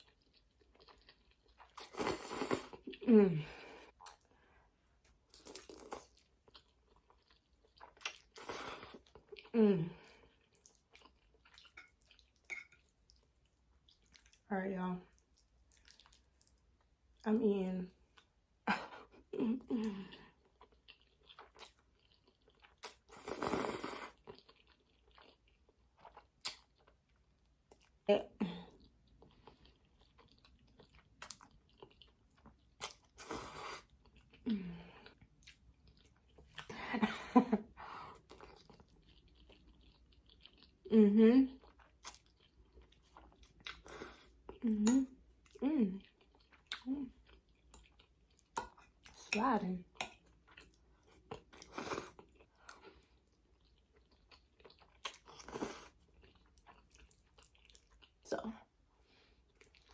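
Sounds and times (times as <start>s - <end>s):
person chewing spaghetti: 0.0s - 14.5s, 15.1s - 17.2s, 18.1s - 28.0s, 28.7s - 36.8s, 37.6s - 40.9s, 41.5s - 59.9s
wet mouth clicks: 26.4s - 26.7s, 44.8s - 45.1s.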